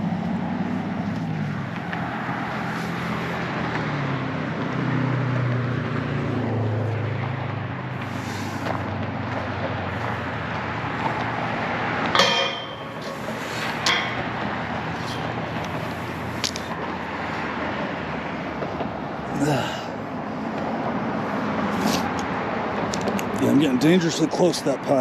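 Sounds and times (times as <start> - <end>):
car engines passing: 0.0 - 25.0
tyre noise: 6.8 - 17.5.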